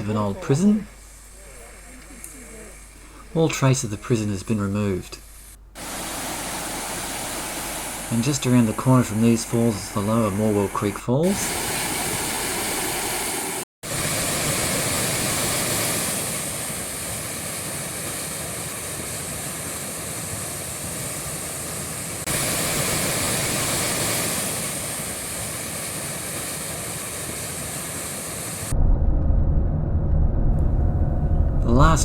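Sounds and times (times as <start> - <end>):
waterfall rushing: 5.2 - 17.9, 21.5 - 28.8.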